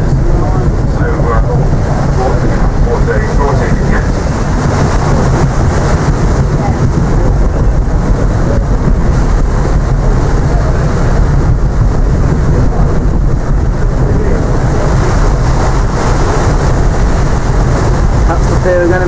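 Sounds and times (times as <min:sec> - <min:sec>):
ship running noise: 0:00.0 - 0:19.0
wind buffeting microphone: 0:00.0 - 0:19.0.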